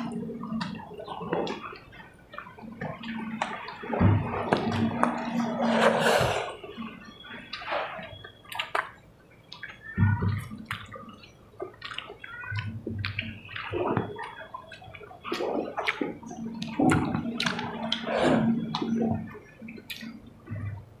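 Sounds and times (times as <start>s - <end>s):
wet chewing and lip-smacking: 6.3s - 20.8s.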